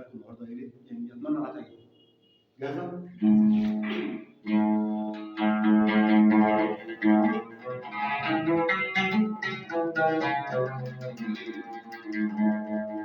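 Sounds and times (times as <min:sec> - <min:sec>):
oud melody: 0:03.1 - 0:13.0.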